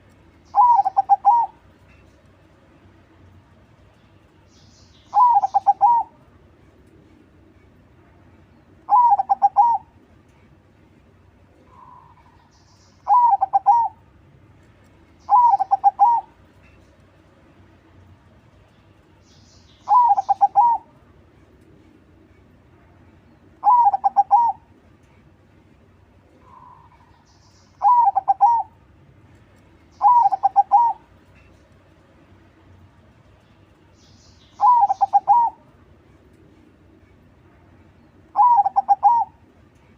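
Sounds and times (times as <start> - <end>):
faint high bird chirps: 0.4 - 2.2, 4.0 - 6.2, 8.5 - 10.4, 11.6 - 14.0, 15.2 - 17.0, 18.7 - 21.0, 23.2 - 25.2, 26.4 - 28.8, 29.9 - 31.7, 33.4 - 35.7, 37.9 - 39.9
dove cooing: 0.5 - 1.6, 5.1 - 6.2, 8.9 - 9.9, 13.0 - 14.0, 15.3 - 16.4, 19.9 - 20.9, 23.6 - 24.7, 27.8 - 28.8, 30.0 - 31.1, 34.6 - 35.6, 38.3 - 39.4.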